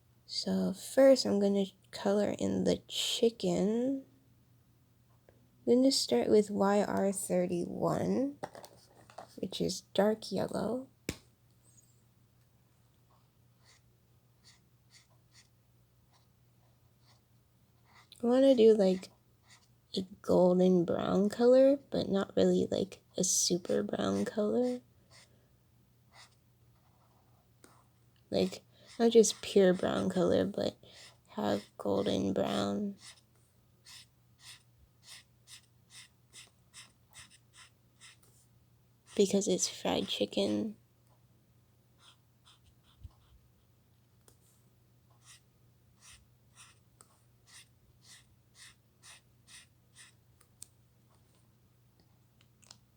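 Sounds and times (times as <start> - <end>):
marker scratching on paper: 13.6 - 13.8, 14.4 - 15.5, 17.0 - 17.2, 17.8 - 18.2, 19.4 - 19.7, 23.6 - 25.3, 26.1 - 27.8, 31.0 - 38.4, 42.0 - 43.4, 45.2 - 45.4, 46.0 - 50.2.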